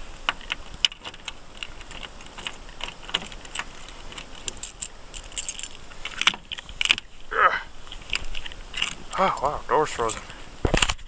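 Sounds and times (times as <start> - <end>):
keys jangling: 4.2 - 6.9.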